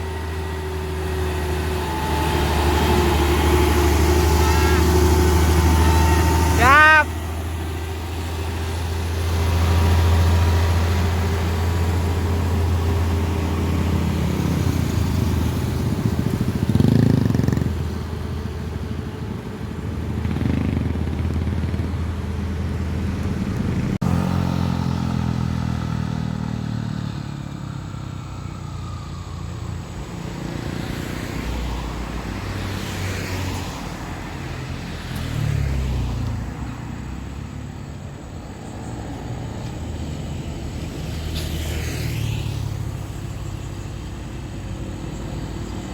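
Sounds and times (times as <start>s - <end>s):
diesel machinery running: 0.0s - 45.9s.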